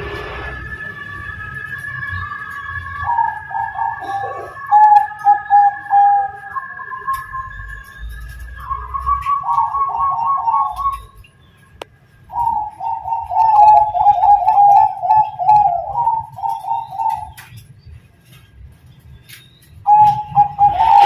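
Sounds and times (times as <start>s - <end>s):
dove cooing in trilled phrases: 3.0s - 6.4s, 8.7s - 11.0s, 12.3s - 17.4s, 19.9s - 21.0s.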